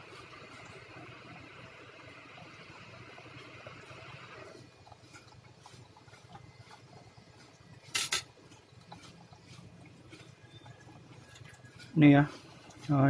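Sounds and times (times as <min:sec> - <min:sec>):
tools clicking and tapping: 0:07.9 - 0:08.6.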